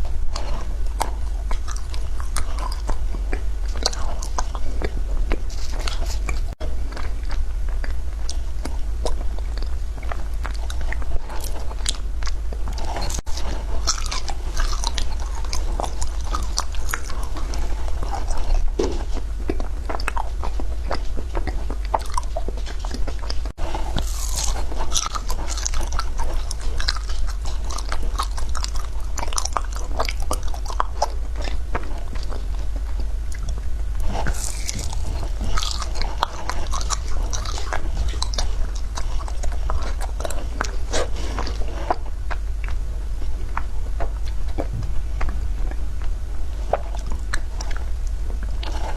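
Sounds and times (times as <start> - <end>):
steady low hum: 0.0 - 48.9
ice being crunched by chewing: 12.8 - 32.5, 33.4 - 42.4.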